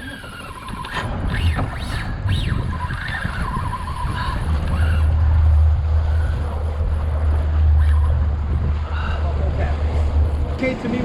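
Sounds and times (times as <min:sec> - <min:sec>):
fishing reel drag squealing: 0:00.0 - 0:08.3
low steady rumble: 0:01.0 - 0:11.0.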